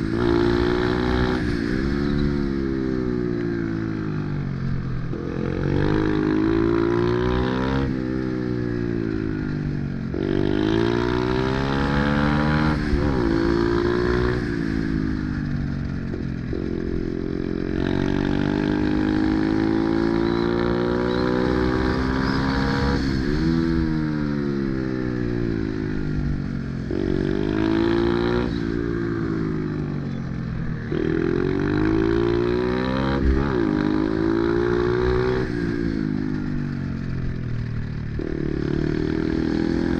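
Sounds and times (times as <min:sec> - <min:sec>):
pit bike engine revving: 0:17.4 - 0:24.2, 0:30.9 - 0:36.3.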